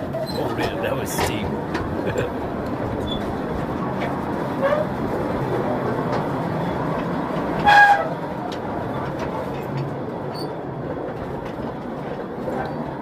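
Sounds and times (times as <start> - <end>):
wheels squealing: 0.0 - 3.6, 4.5 - 5.0, 6.6 - 8.2, 10.3 - 10.6
train rumbling on rails: 0.0 - 13.0.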